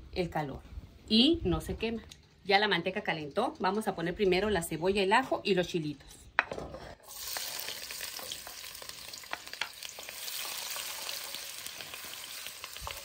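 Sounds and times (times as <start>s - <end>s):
food sizzling in hot fat: 7.0s - 13.0s.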